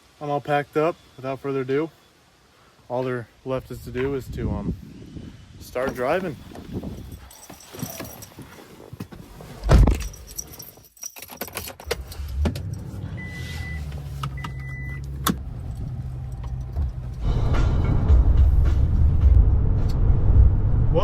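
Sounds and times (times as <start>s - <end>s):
keys jangling: 6.8s - 8.6s, 9.9s - 12.9s, 15.5s - 17.2s
truck engine running: 12.7s - 20.6s.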